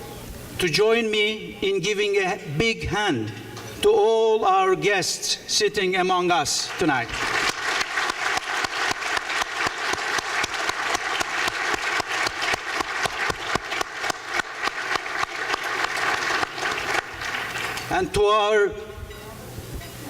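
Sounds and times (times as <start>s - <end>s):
large audience applauding: 6.7s - 17.9s.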